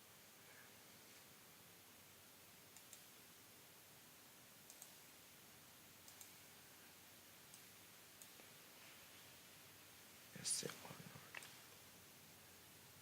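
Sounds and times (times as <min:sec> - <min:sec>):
low hiss: 0:00.0 - 0:13.0
computer mouse clicking: 0:02.7 - 0:03.2, 0:04.6 - 0:05.0, 0:06.0 - 0:06.4, 0:07.5 - 0:08.5.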